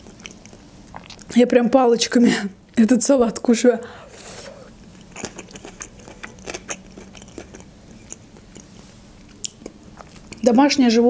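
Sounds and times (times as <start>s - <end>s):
person chewing vegetables: 0.0s - 1.4s, 4.2s - 10.5s.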